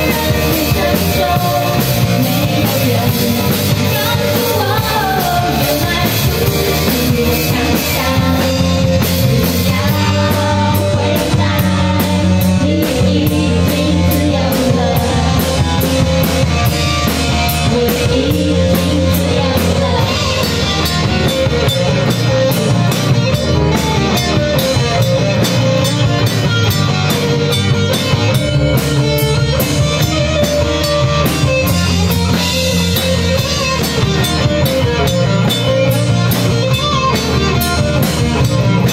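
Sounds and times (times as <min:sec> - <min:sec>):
person singing: 0:00.0 - 0:16.4, 0:17.4 - 0:22.7
drum kit beat: 0:00.0 - 0:38.9
guitar: 0:00.0 - 0:38.9.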